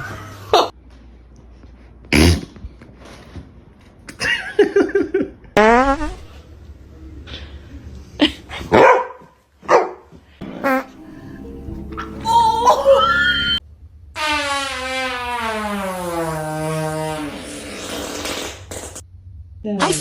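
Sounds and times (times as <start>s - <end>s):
fart noises: 2.1s - 2.7s, 5.6s - 6.4s, 10.4s - 11.0s, 14.2s - 19.0s
dog barking: 8.7s - 10.1s
dog whining: 12.0s - 13.6s.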